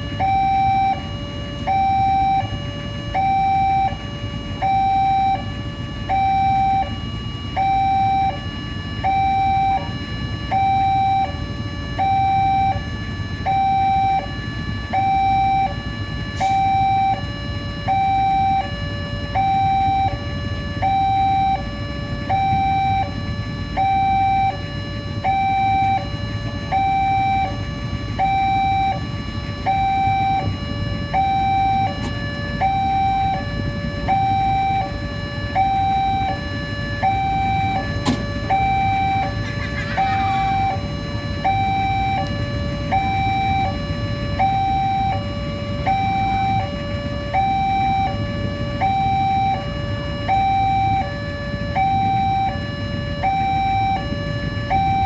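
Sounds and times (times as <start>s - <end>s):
level crossing two-tone alarm: 0.0s - 55.0s.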